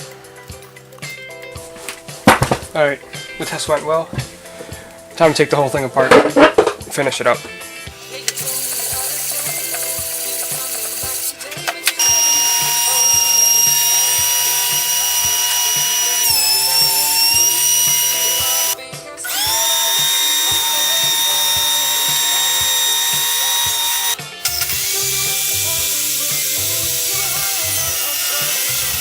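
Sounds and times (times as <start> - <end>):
electric drill whining: 8.0 - 29.0.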